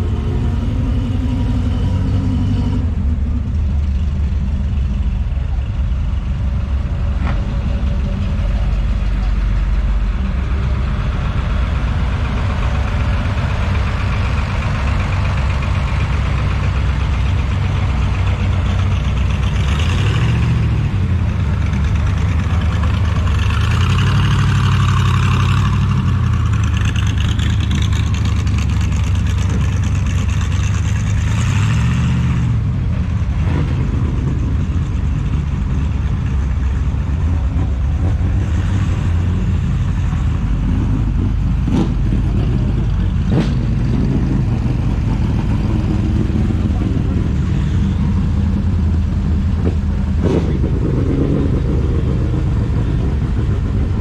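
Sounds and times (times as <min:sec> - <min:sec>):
car engine revving: 0:11.2 - 0:54.0.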